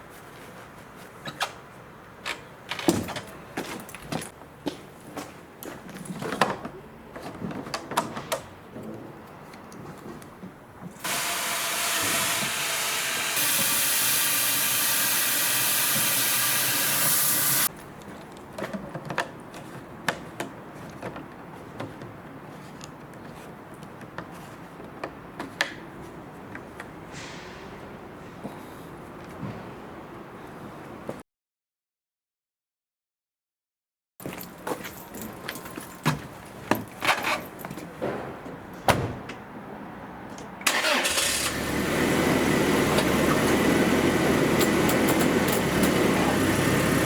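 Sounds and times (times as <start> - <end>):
loud steady hiss: 11.0 - 17.7.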